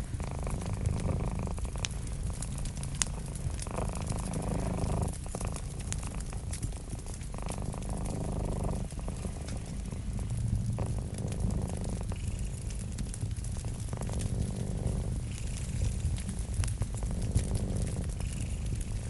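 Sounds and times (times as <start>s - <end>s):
cat purring: 0.0s - 19.0s
wood fire crackling: 0.0s - 19.0s.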